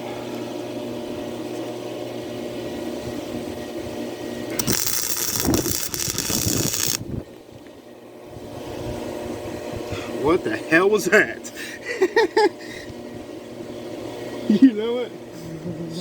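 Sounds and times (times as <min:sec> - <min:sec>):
arc welder humming: 0:04.5 - 0:07.2
welding arc crackling: 0:04.6 - 0:07.1.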